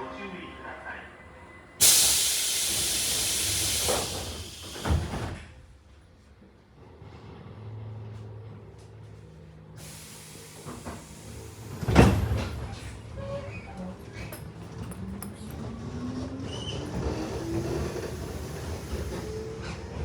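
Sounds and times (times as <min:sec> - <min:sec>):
air hiss: 0:01.8 - 0:05.2, 0:09.8 - 0:11.8
train doors shutting with a thud: 0:01.8 - 0:05.8, 0:09.8 - 0:20.0.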